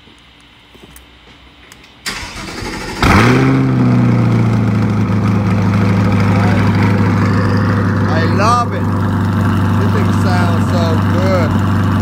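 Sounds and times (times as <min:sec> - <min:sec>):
car engine revving and idling: 0:02.4 - 0:12.0.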